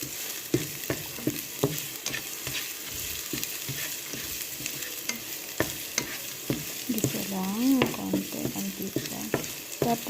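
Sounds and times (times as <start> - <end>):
food sizzling in frying pan: 0.0 - 10.0.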